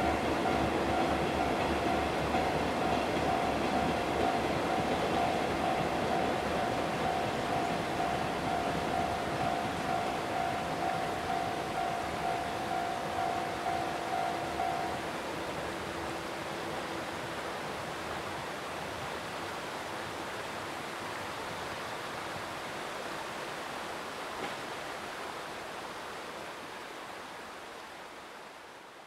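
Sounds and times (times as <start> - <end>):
freight train rolling on rails: 0.0 - 21.7
faint steady tone: 0.0 - 23.5.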